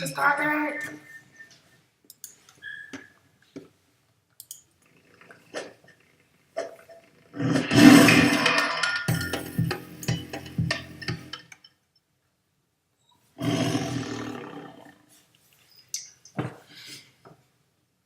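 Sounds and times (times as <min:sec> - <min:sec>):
animal's loud rough call: 0:13.4 - 0:15.0.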